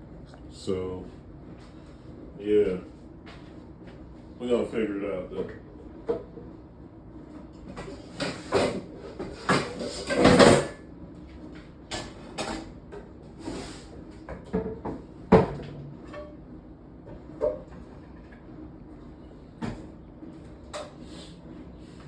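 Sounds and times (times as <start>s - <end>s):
cabinet doors and cookware clattering: 8.1s - 10.8s.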